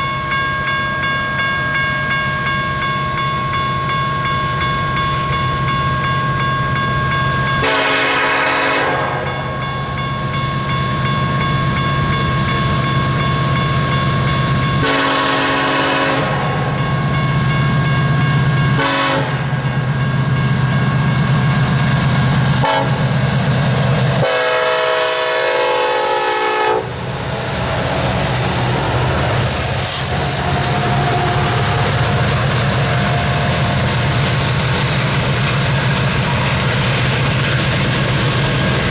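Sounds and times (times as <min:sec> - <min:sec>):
locomotive air horn: 0:07.6 - 0:09.3, 0:14.8 - 0:16.7, 0:18.8 - 0:19.5, 0:22.6 - 0:23.1, 0:24.2 - 0:27.0, 0:28.2 - 0:33.7
diesel engines droning: 0:24.2 - 0:35.3.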